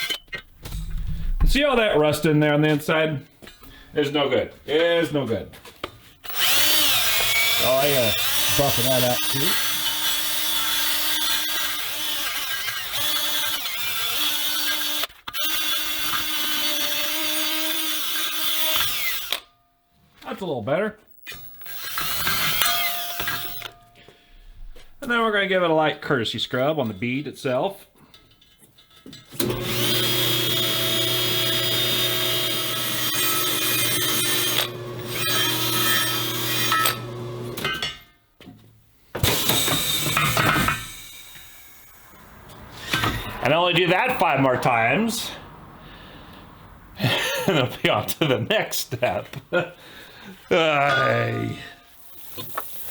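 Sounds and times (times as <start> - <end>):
power tool motor whine: 6.2 - 19.5, 21.3 - 23.8, 29.4 - 37.8, 39.2 - 42.3.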